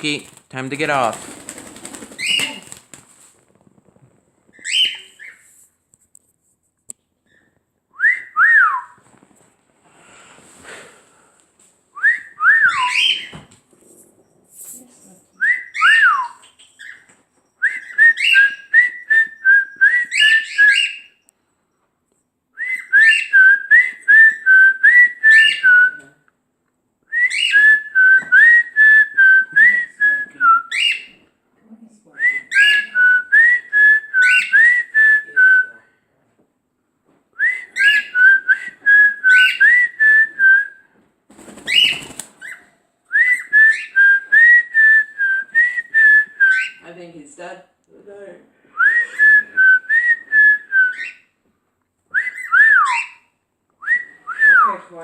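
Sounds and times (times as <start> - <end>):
bird whistling a tune: 12.0 - 13.4, 17.6 - 21.2, 22.6 - 25.9, 27.2 - 28.7, 37.4 - 40.7, 43.1 - 46.8, 48.8 - 51.3, 52.2 - 53.2.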